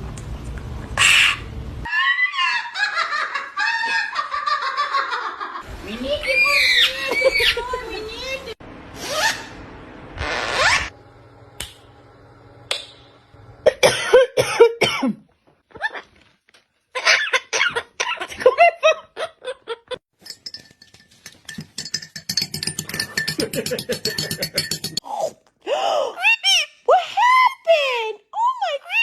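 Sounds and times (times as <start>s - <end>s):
parrot calling: 1.0s - 2.9s, 6.2s - 7.8s, 9.0s - 9.6s.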